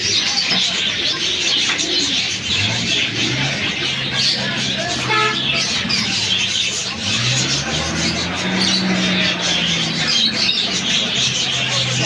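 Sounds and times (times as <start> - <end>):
birds chattering: 0.0 - 12.0
vehicle engine humming: 0.0 - 12.0.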